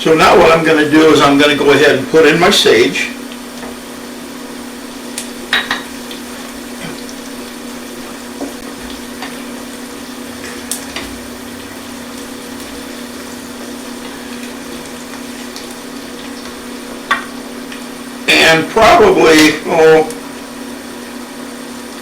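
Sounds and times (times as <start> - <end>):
steady low hum: 0.0 - 22.0
vegetables sizzling in a pan: 0.4 - 22.0
utensil tapping a pan: 16.4 - 17.4.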